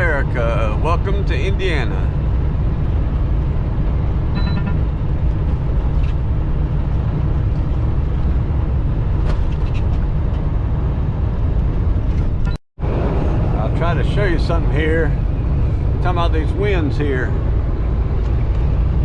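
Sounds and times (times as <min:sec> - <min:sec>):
truck cab drone at highway speed: 0:00.0 - 0:19.0
short tone: 0:04.4 - 0:05.0.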